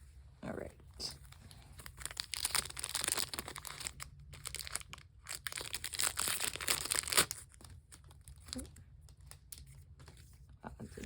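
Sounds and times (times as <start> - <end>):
foil wrapper crinkling and tearing: 1.8 - 9.7.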